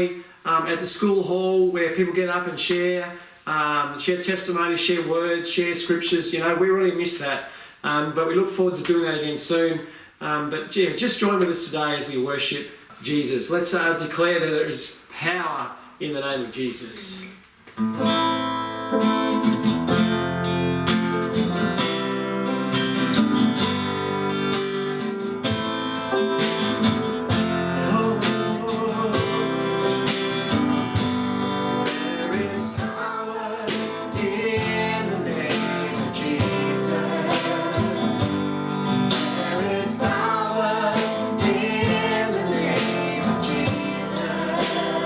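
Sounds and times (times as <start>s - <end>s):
acoustic guitar strumming: 17.8s - 45.0s.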